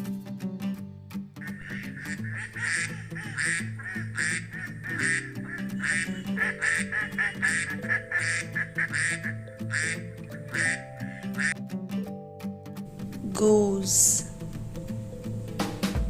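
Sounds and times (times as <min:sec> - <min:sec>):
background music: 0:00.0 - 0:16.0
duck quacking: 0:01.4 - 0:11.6.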